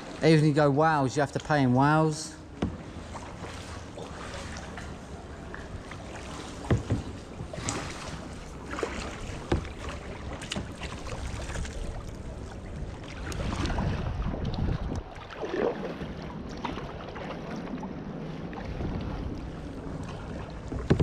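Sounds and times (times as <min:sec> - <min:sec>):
paddle strokes splashing: 0:00.0 - 0:21.0
wind noise on microphone: 0:13.3 - 0:16.0
sharp knocks: 0:20.7 - 0:21.0.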